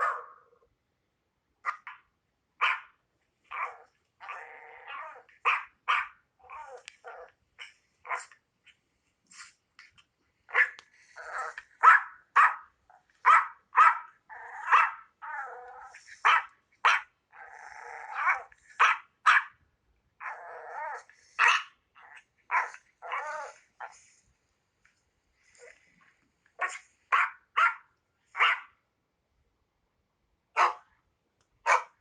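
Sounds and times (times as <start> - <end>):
dog barking high-pitched: 0.0 - 0.4, 1.6 - 6.8, 8.1 - 8.4, 10.5 - 10.8, 11.4 - 15.4, 16.2 - 17.1, 18.1 - 19.6, 20.9 - 21.8, 22.5 - 24.0, 26.6 - 28.8, 30.6 - 30.9, 31.6 - 32.0
dog growling: 3.5 - 5.5, 6.4 - 8.3, 10.5 - 11.8, 14.3 - 16.4, 17.3 - 18.8, 20.2 - 24.2.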